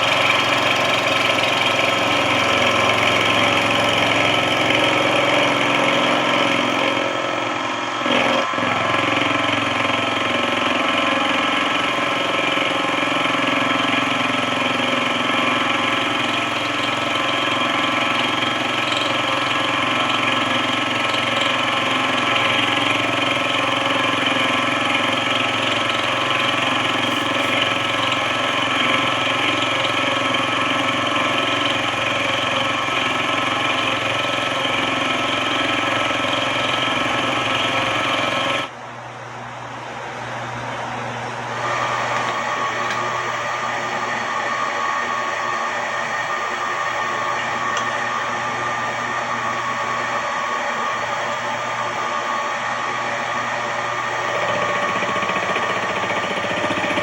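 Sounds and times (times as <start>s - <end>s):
machine tool running: 0.0s - 38.7s, 41.5s - 57.0s.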